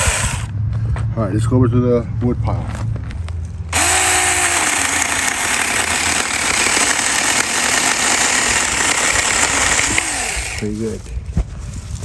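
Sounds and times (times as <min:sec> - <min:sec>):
electric chainsaw cutting wood: 0:00.0 - 0:00.5, 0:03.7 - 0:11.0.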